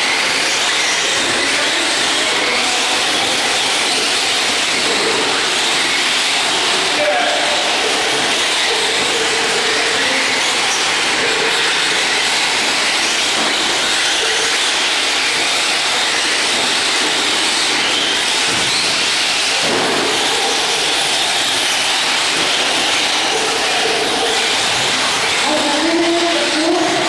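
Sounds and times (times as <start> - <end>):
loud steady noise: 0.0 - 27.0
rc truck engine whines: 0.0 - 27.0.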